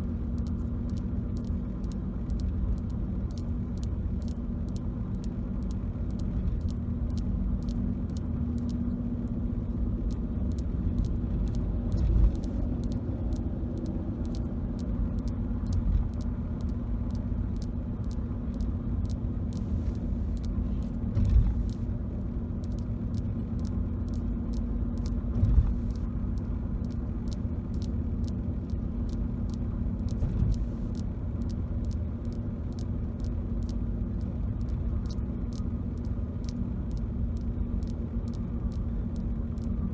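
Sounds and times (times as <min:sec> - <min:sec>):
car road noise rumble: 0:00.0 - 0:39.9.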